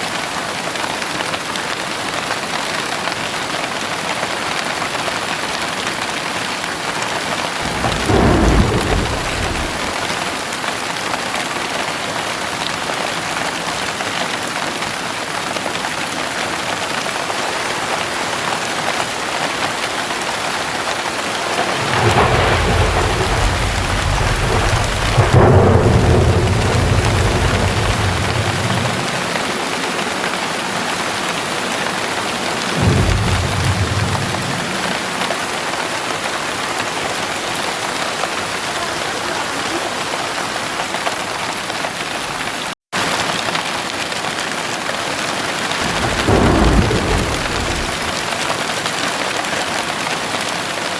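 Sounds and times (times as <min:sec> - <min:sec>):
heavy rain: 0:00.0 - 0:50.9
thunder rumbling: 0:07.5 - 0:11.0, 0:19.7 - 0:37.5, 0:45.6 - 0:49.0.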